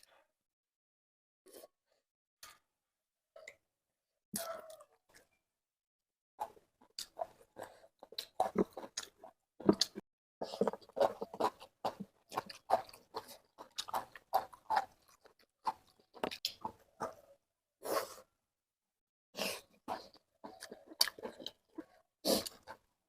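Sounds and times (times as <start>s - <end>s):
person chewing food: 6.4s - 17.4s, 19.4s - 22.9s.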